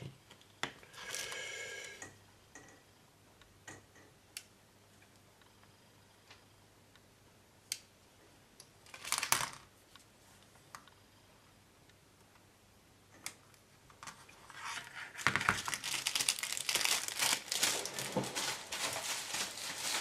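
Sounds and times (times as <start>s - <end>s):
plastic parts rustling: 8.9s - 9.6s, 14.5s - 20.0s.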